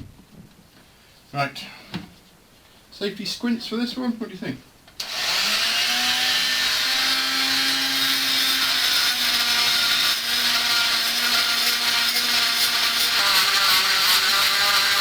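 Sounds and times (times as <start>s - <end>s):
rotary tool grinding metal: 5.0s - 15.0s.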